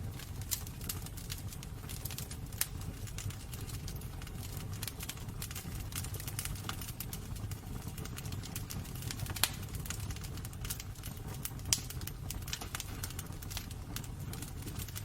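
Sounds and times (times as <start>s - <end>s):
fire crackling in fireplace: 0.0s - 15.0s.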